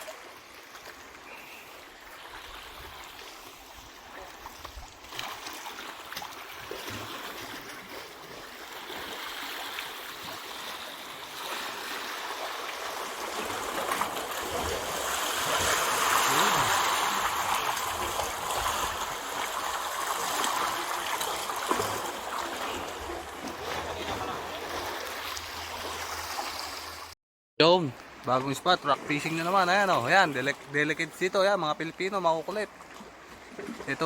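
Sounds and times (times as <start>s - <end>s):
water rushing among rocks: 5.3s - 27.1s.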